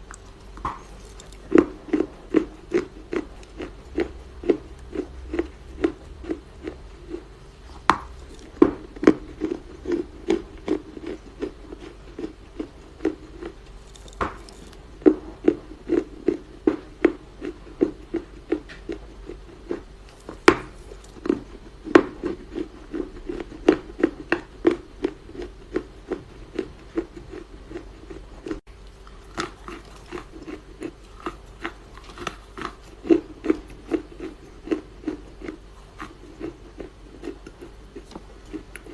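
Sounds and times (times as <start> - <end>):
clay crunching: 13.0 - 15.2.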